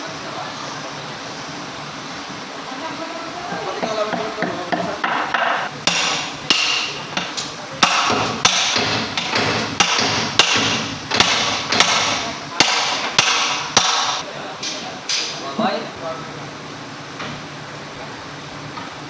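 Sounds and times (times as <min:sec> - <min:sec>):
hammer striking metal: 0:04.1 - 0:15.3.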